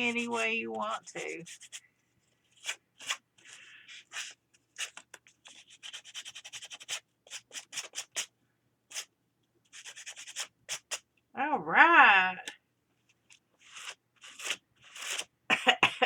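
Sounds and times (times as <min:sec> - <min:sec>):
sanding paper page edges: 0:00.0 - 0:01.8, 0:02.5 - 0:08.3, 0:09.7 - 0:11.0, 0:13.6 - 0:15.3.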